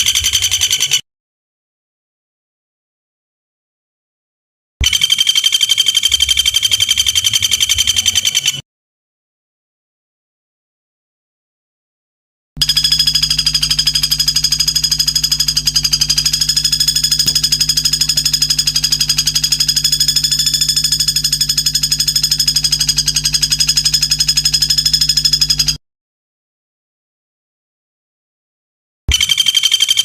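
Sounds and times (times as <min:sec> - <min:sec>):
low hum: 0:12.6 - 0:25.8
shrill buzzing bird trill: 0:12.6 - 0:25.8, 0:29.1 - 0:30.0.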